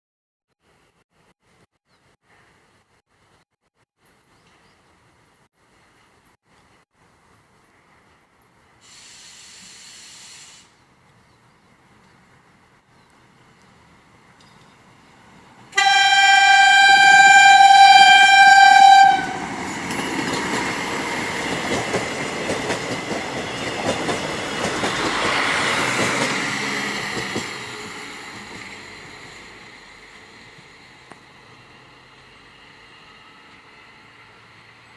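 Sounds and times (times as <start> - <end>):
train horn blast: 15.7 - 19.5
train wheels clattering over rails: 19.6 - 29.5.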